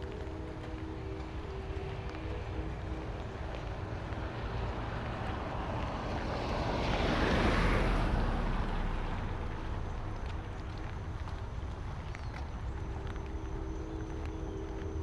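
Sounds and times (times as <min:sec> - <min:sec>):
car tyres hissing on wet road: 0:04.1 - 0:10.3.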